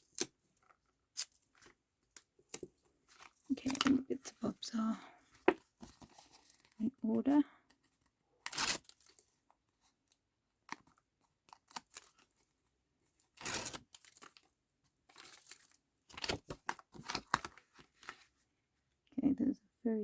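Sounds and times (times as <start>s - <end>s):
card crinkling: 15.1s - 18.2s.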